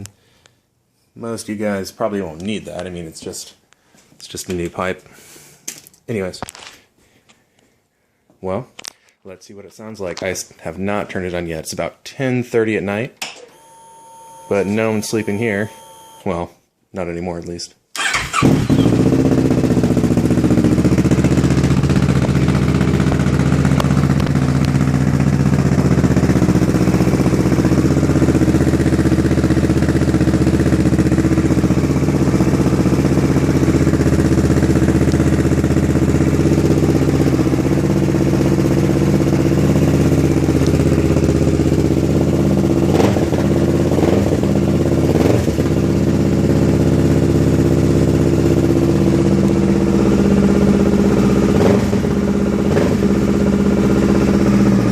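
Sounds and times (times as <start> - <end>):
motorcycle engine idling: 18.9 - 54.9.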